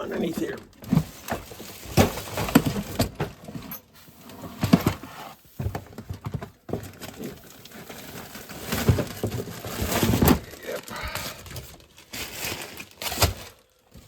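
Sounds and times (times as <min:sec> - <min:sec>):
objects knocking and clunking: 0:00.2 - 0:03.9, 0:04.5 - 0:11.9.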